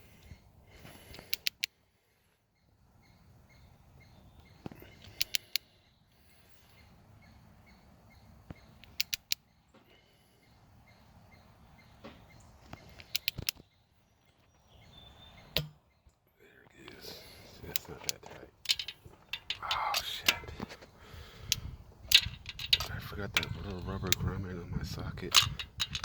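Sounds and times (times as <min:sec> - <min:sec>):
ratchet wrench clicking: 0:18.7 - 0:20.4, 0:21.5 - 0:24.3, 0:25.3 - 0:26.0.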